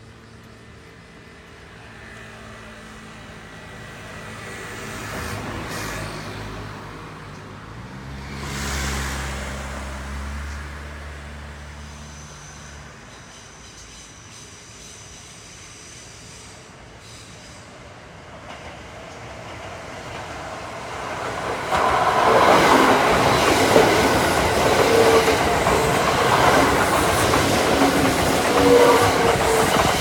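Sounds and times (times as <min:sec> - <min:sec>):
vehicles passing by: 0:00.1 - 0:13.0.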